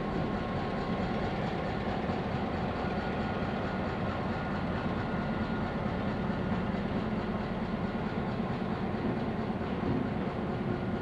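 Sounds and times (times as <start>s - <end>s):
train wheels rumbling and rattling: 0.0s - 11.0s.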